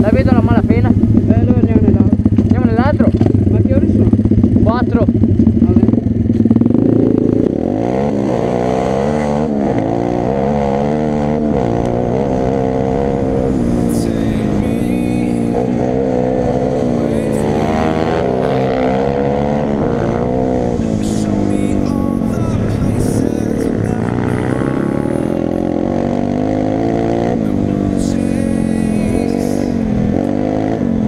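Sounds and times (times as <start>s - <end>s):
pit bike engine revving: 0.0s - 31.0s.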